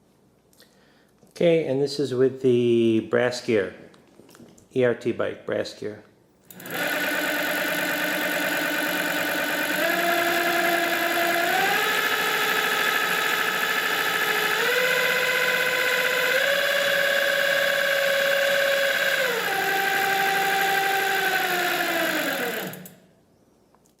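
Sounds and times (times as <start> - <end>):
electric bike motor gear whine: 6.5 - 23.0.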